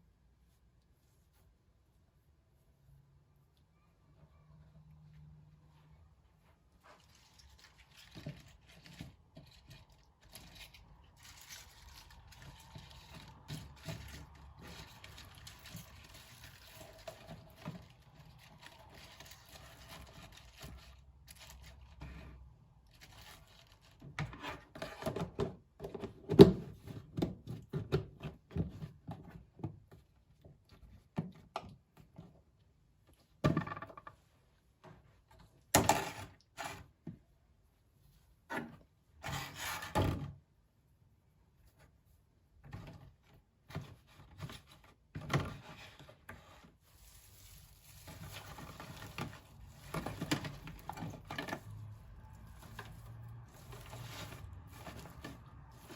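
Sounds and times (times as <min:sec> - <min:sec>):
objects knocking and scraping: 0:06.9 - 0:30.0, 0:33.4 - 0:37.2, 0:47.8 - 0:55.9.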